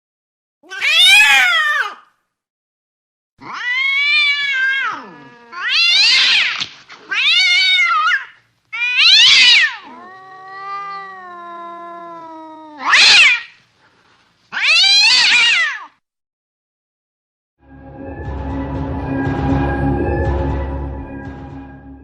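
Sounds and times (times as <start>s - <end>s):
cats yowling and screeching: 0.6s - 2.1s, 3.4s - 13.6s, 14.5s - 16.0s.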